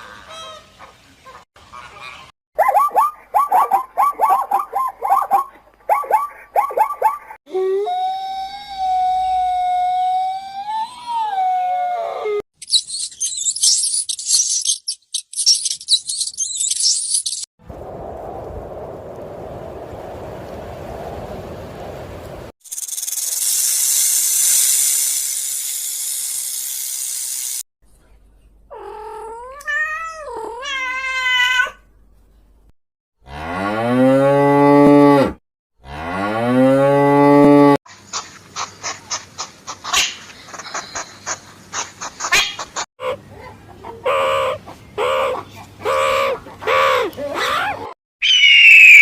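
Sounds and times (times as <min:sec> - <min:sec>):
high hiss: 0:22.7 - 0:27.6
rapid ticking: 0:22.7 - 0:27.6
cow mooing: 0:33.2 - 0:37.8
wavering animal call: 0:43.0 - 0:49.0.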